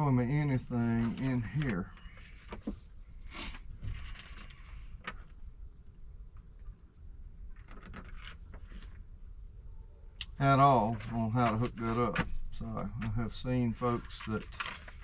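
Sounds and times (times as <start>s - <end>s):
low background rumble: 0.0s - 15.0s
soft handling clicks and rustles: 0.4s - 6.8s, 10.8s - 15.0s.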